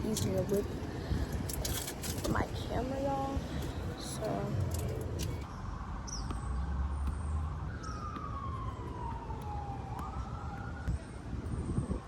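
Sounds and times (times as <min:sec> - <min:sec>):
siren wailing: 0:07.5 - 0:12.0.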